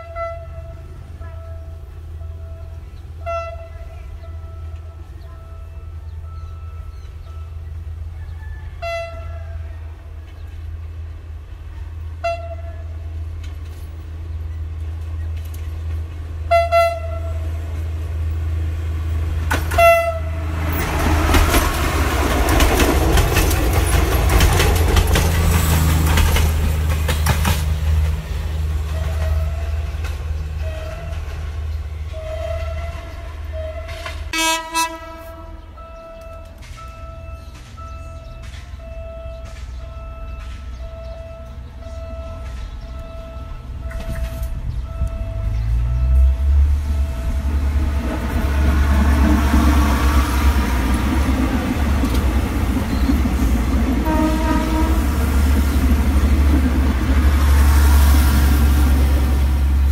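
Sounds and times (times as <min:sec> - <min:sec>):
train horn blasts: 0:00.0 - 0:10.2, 0:12.1 - 0:13.2, 0:16.4 - 0:18.0, 0:19.5 - 0:21.4, 0:28.8 - 0:52.2, 0:53.8 - 0:56.0
passing train wheel and engine noise: 0:00.0 - 0:59.9.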